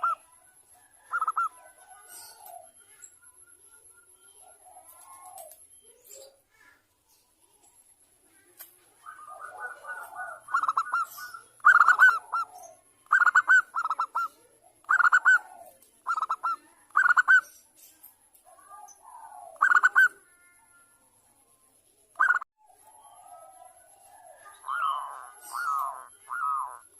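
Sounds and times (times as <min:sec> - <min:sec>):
dove cooing: 0:00.0 - 0:03.0, 0:04.3 - 0:05.6, 0:08.4 - 0:17.5, 0:18.5 - 0:20.5, 0:22.2 - 0:26.9.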